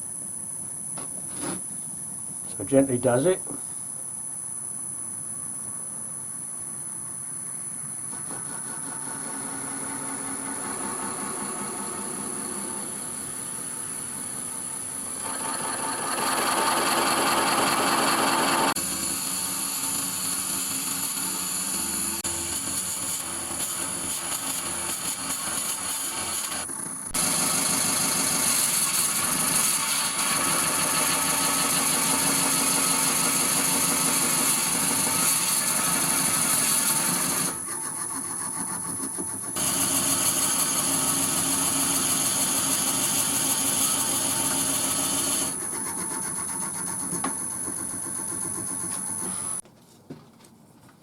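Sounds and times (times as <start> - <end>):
wood lathe running: 8.1 - 49.6
drill bit boring into wood: 13.0 - 49.6.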